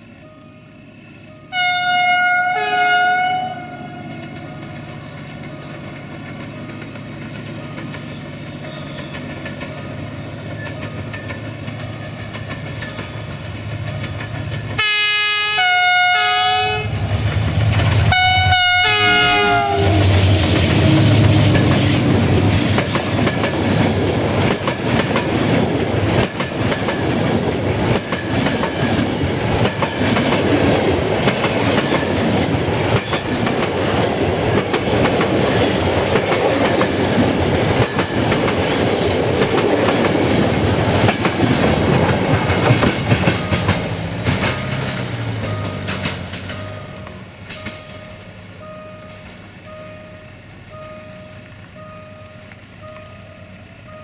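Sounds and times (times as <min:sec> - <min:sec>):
diesel train engine rumbling: 0:00.0 - 0:54.0
two-note train horn blasts: 0:01.3 - 0:04.8, 0:14.8 - 0:17.0, 0:18.1 - 0:21.6
wheels clicking over rail joints: 0:04.0 - 0:15.8, 0:17.0 - 0:54.0.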